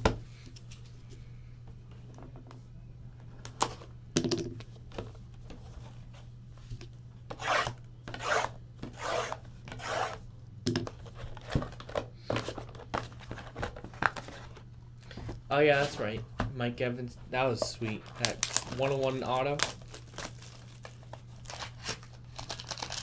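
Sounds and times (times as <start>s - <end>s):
low electrical hum: 0.0s - 23.0s
cards sliding and rubbing: 7.3s - 10.2s, 12.3s - 16.3s.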